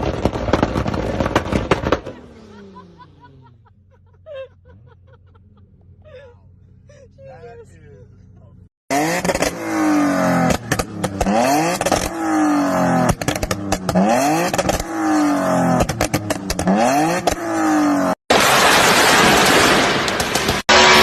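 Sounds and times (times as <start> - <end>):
exhaust crackles and pops: 0.0 - 2.3, 10.4 - 12.2, 12.9 - 15.0, 15.7 - 17.5, 18.3 - 21.0
car engine revving: 8.2 - 21.0.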